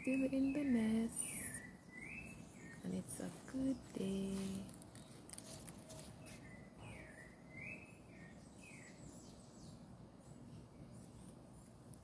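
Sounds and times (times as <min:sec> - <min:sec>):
bird whistling faintly: 0:05.9 - 0:09.1.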